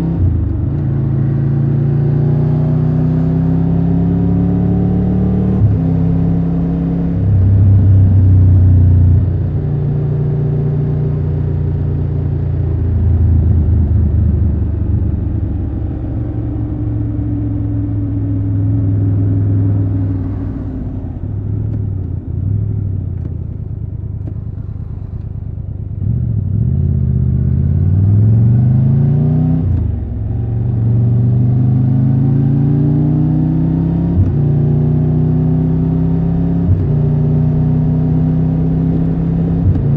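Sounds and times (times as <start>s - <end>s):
motorcycle engine running: 11.2s - 27.7s.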